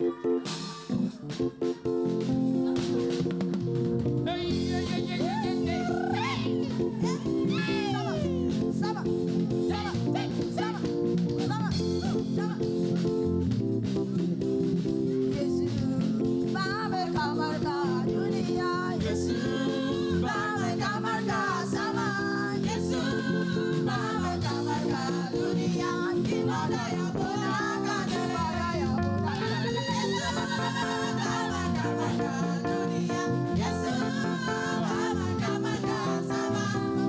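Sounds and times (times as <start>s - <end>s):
live band playing: 0.0s - 37.0s
person singing: 4.3s - 10.7s.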